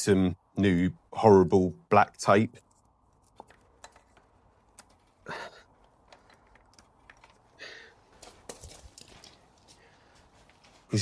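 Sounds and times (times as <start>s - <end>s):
light clicks of metal parts: 2.5s - 10.8s.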